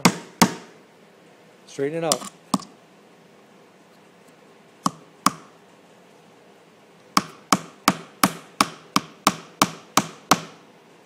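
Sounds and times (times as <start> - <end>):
hammer driving nail into wood: 0.0 - 0.7, 4.9 - 5.5, 7.2 - 10.6.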